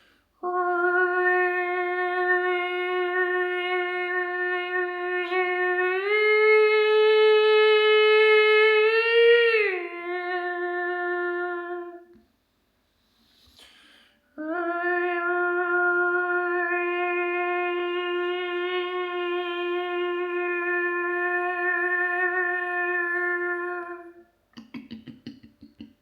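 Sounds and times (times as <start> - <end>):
faint breath: 0.0 - 0.4, 12.9 - 14.3
person humming a held note: 0.4 - 12.2, 14.4 - 24.3.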